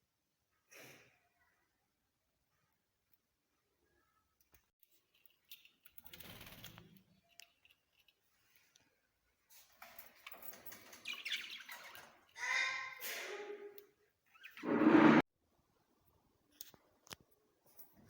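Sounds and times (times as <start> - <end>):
small birds chirping: 10.8 - 12.8.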